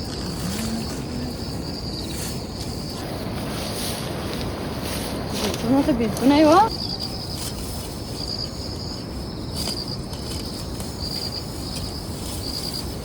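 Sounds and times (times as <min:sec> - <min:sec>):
low rushing noise: 0:00.0 - 0:06.8
insects trilling: 0:00.0 - 0:13.0.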